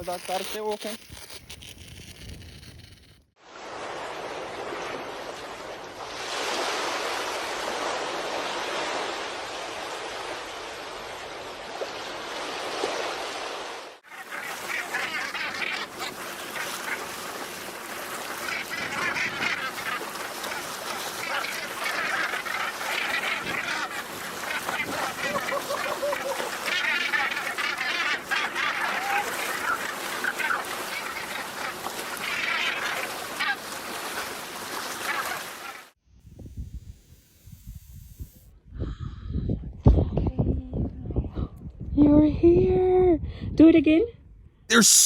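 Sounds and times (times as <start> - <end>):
waterfowl honking and quacking: 14.1 - 34.0, 34.8 - 35.9.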